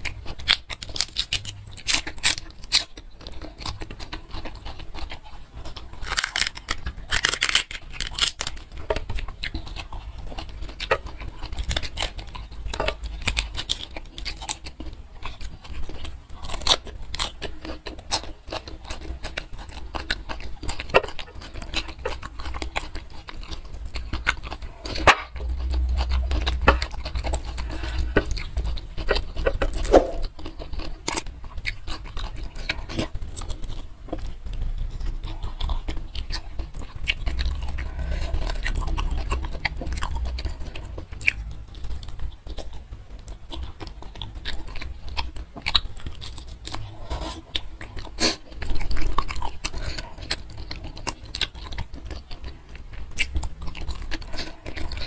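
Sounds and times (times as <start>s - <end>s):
wet chewing and mouth smacks: 0.0s - 55.0s.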